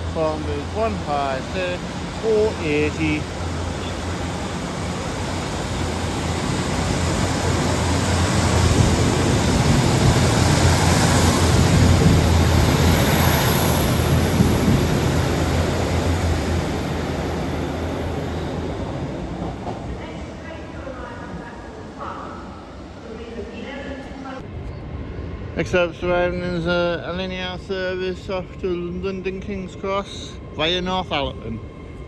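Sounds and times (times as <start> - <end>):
train wheels on rails: 0.0 - 20.0
diesel train engine hum: 0.0 - 32.0.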